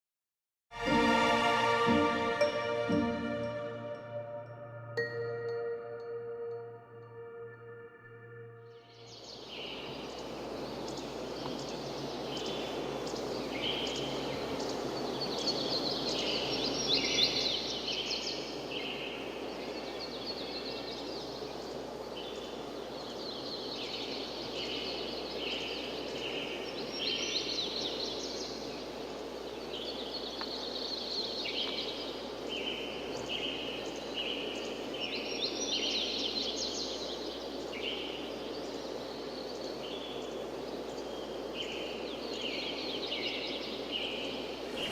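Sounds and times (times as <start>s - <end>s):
birds singing: 5.4s - 44.9s
steady rushing noise: 43.6s - 44.9s.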